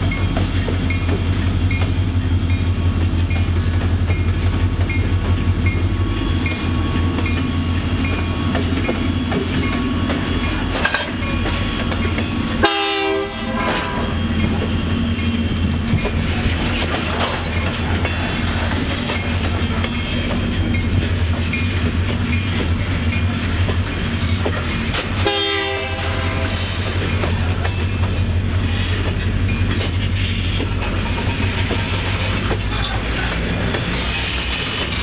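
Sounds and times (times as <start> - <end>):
locomotive engine hum: 0.0 - 35.0
wheels rumbling on rails: 0.0 - 35.0
train horn blast: 12.6 - 14.3, 25.2 - 26.8.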